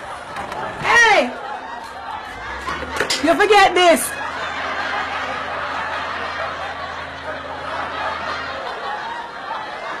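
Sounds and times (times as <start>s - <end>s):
group of people laughing: 0.0s - 10.0s.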